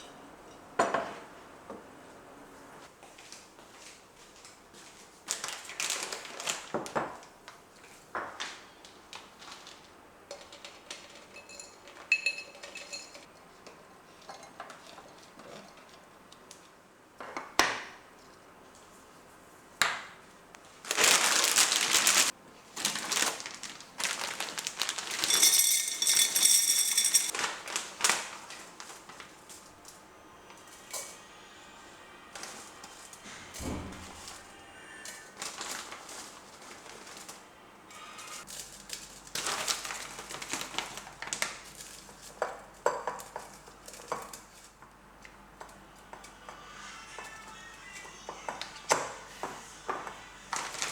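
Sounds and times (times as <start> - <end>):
dishes and utensils clinking: 0.0 - 1.3, 10.3 - 16.1, 24.9 - 27.5, 30.5 - 31.4
crinkling and rustling: 3.2 - 13.3, 20.6 - 30.0, 32.4 - 37.5, 38.2 - 45.0, 50.5 - 50.9.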